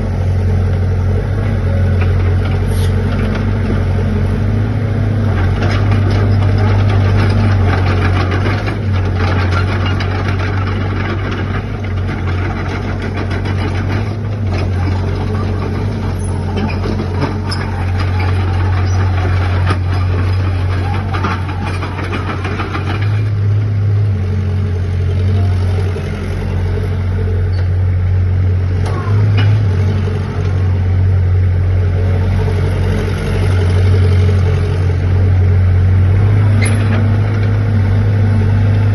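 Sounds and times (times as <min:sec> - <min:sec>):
excavator diesel engine humming: 0:00.0 - 0:38.9.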